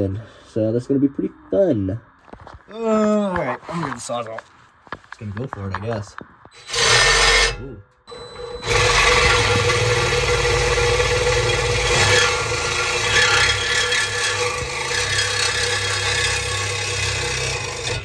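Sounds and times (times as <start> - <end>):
reciprocating saw cutting metal pipe: 6.6 - 18.0.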